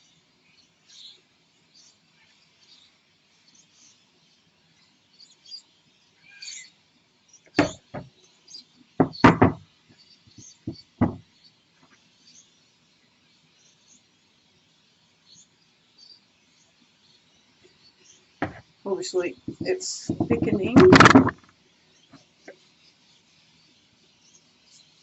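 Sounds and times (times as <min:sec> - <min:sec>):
sharp knocks and taps: 0:07.6 - 0:08.1, 0:09.0 - 0:09.6, 0:10.7 - 0:11.2, 0:19.5 - 0:21.5.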